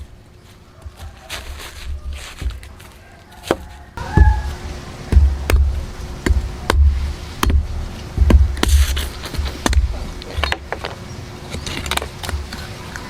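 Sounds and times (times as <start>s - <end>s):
blade chopping coconut shell: 5.1s - 10.8s.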